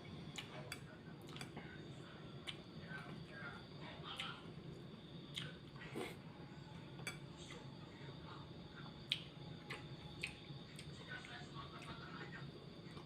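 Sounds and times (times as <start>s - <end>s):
wet mouth clicks while chewing: 9.0s - 10.9s.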